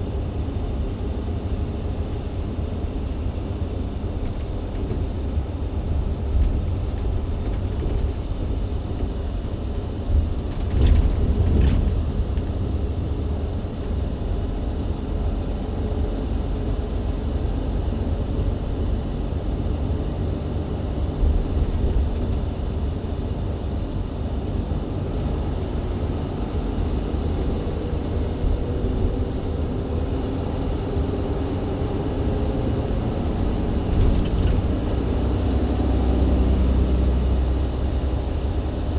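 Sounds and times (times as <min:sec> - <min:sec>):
bus engine rumble: 0:00.0 - 0:38.9
road noise: 0:00.0 - 0:38.9
brief rattles: 0:33.7 - 0:35.0.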